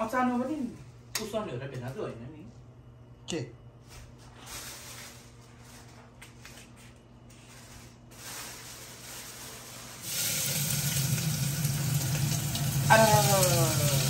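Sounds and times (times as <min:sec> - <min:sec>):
onion sizzling in a hot pan: 0:08.2 - 0:14.0.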